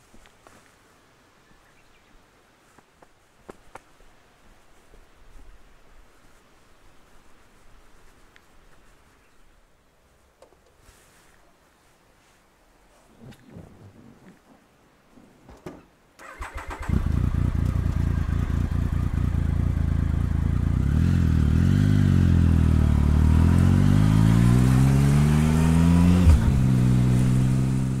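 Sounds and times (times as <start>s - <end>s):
motorcycle engine accelerating: 16.2s - 28.0s.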